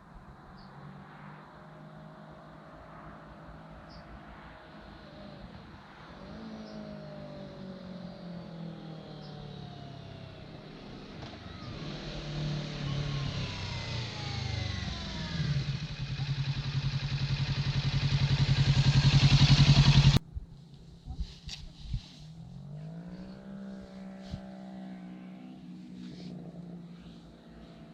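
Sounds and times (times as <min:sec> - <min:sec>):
motorcycle engine running: 0:06.3 - 0:20.2.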